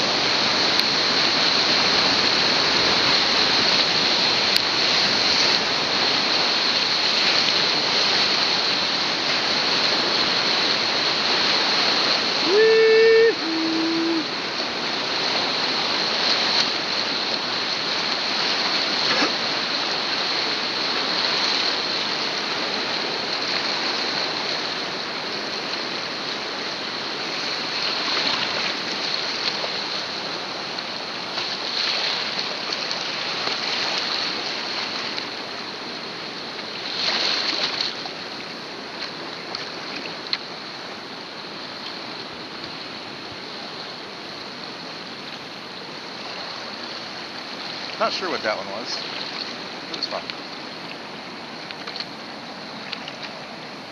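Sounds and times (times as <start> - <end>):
whitewater rushing and splashing: 0.0 - 53.9
person shouting: 12.4 - 14.3.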